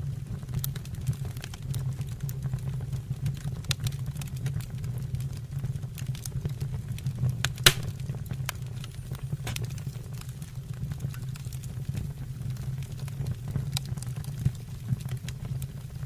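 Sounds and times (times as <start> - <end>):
fire burning in a fireplace: 0.0 - 16.0
loud fire pop: 7.7 - 8.5.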